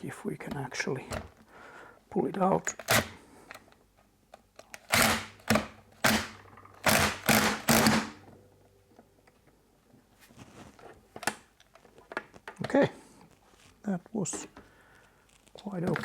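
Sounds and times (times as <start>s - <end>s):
socket tool turning bolt: 4.6s - 8.2s.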